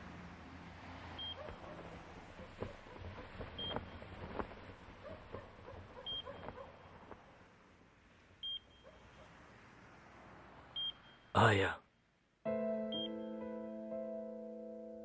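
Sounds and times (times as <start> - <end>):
patient monitor beeping: 12.9 - 13.2.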